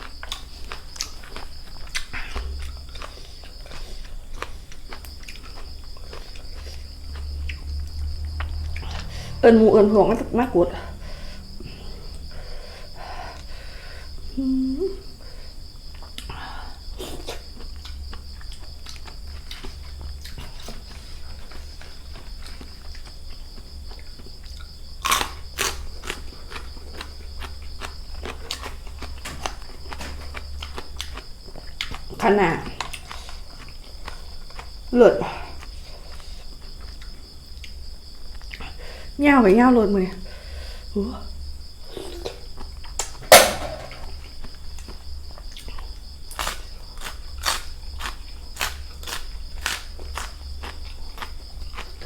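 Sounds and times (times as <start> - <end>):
person chewing crunchy food: 0.0 - 9.4, 15.5 - 38.8, 41.7 - 52.0
crickets chirping: 0.0 - 52.0
high-pitched insect drone: 14.2 - 15.3.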